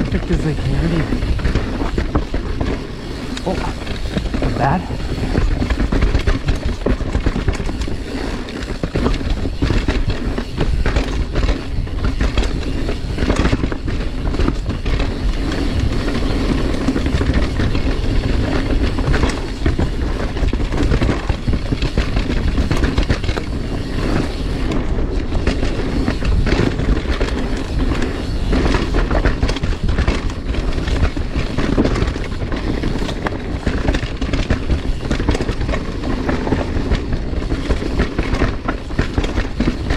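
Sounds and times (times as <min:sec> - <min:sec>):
steady low rumble: 0:00.0 - 0:08.0
bike rattling: 0:00.0 - 0:39.9
bike tyres rolling on dirt: 0:00.0 - 0:39.9.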